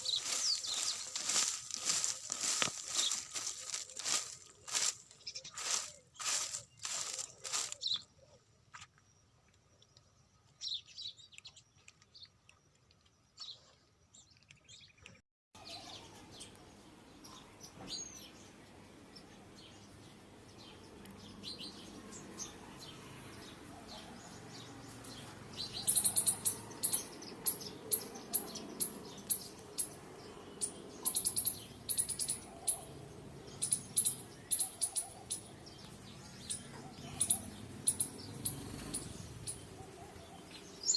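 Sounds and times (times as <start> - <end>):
steady background noise: 0.0 - 7.8
small birds chirping: 0.0 - 40.9.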